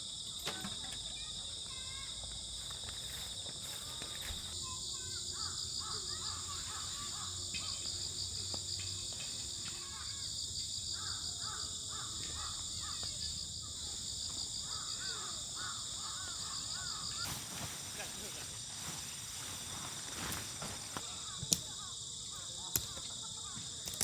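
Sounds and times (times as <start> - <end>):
insects trilling: 0.0 - 24.0
bird calls: 14.6 - 21.8.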